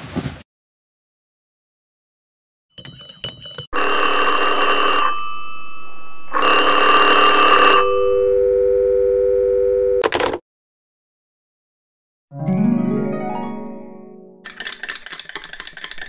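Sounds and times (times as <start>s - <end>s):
low two-note phone tone: 5.0s - 10.0s
telephone ringing: 6.4s - 9.2s.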